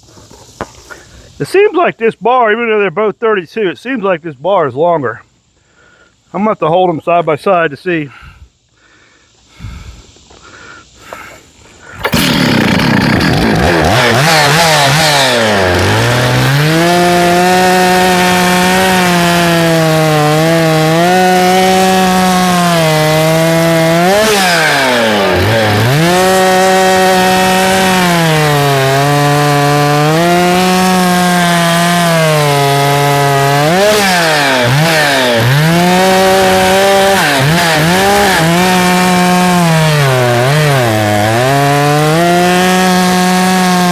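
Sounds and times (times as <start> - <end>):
chainsaw cutting wood: 11.1 - 43.9.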